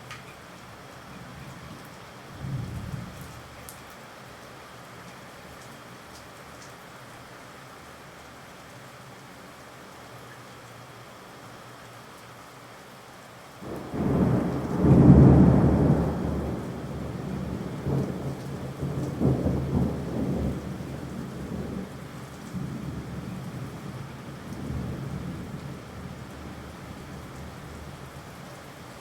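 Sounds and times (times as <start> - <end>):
steady rain: 0.0 - 29.0
thunder rumbling: 2.4 - 3.2, 13.6 - 28.3.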